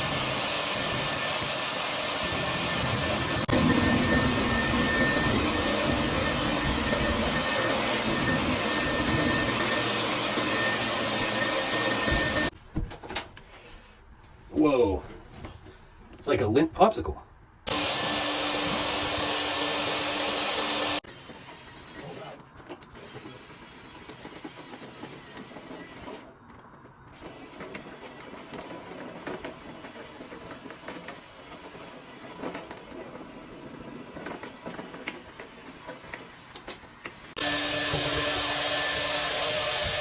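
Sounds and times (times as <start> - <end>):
vacuum humming: 0.0 - 12.5, 17.7 - 21.3, 27.2 - 40.0.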